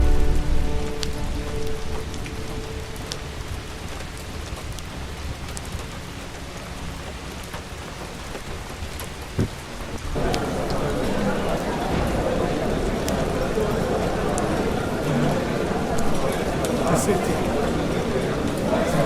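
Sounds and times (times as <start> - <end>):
held music chord: 0.0 - 4.6
steady rain falling: 0.0 - 19.0.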